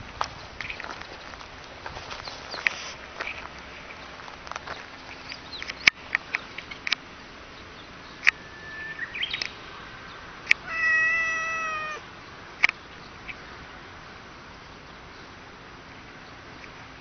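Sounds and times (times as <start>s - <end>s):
cat meowing: 10.6s - 12.0s.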